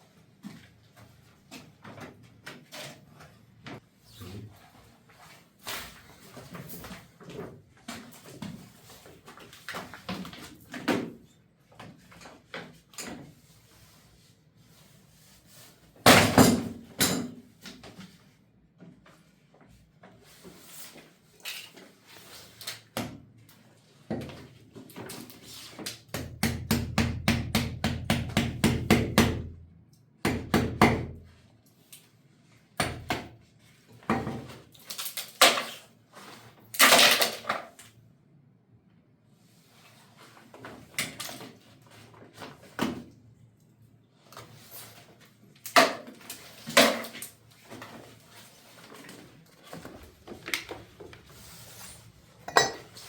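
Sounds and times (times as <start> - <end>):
hard objects knocking and clattering: 52.5 - 53.0.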